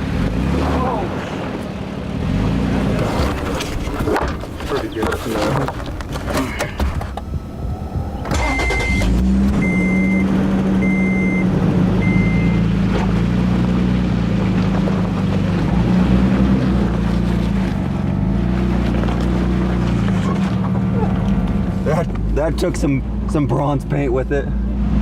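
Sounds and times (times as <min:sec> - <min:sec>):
truck engine starting and idling: 0:00.0 - 0:25.0
dashboard warning chime beeps: 0:08.2 - 0:12.7.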